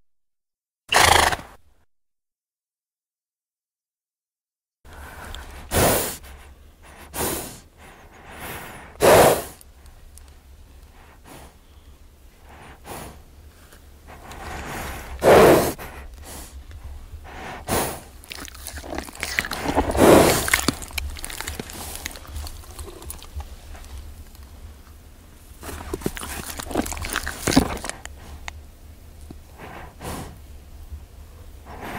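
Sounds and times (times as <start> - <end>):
horse snorting: 0.9 - 1.6, 5.3 - 9.6, 14.1 - 16.6, 17.3 - 24.2, 25.6 - 28.5.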